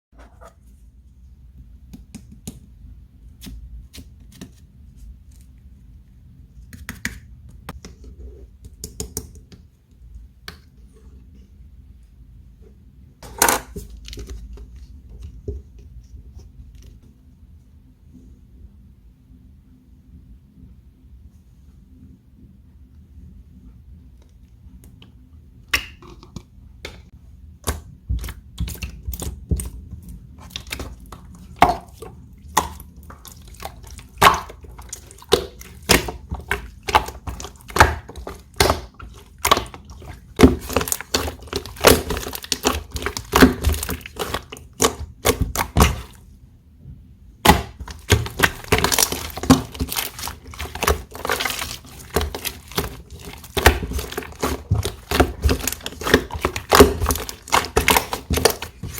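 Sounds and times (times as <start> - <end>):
slime squished by hand: 27.6 - 46.2, 47.4 - 58.9.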